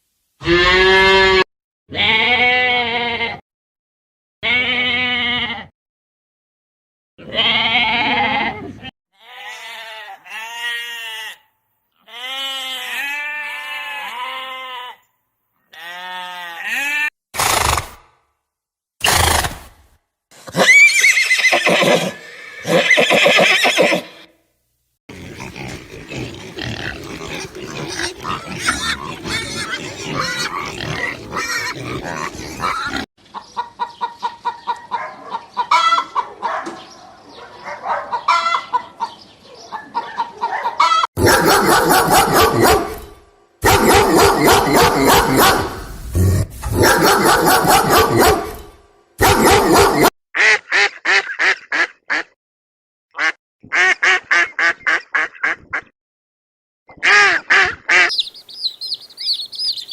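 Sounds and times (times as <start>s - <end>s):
pig calls: 25.1s - 33.1s, 40.0s - 48.6s, 49.2s - 51.2s
short repeated animal calls: 25.1s - 33.1s, 57.9s - 59.9s
poultry calling: 25.1s - 36.4s, 38.1s - 39.2s, 57.6s - 59.9s.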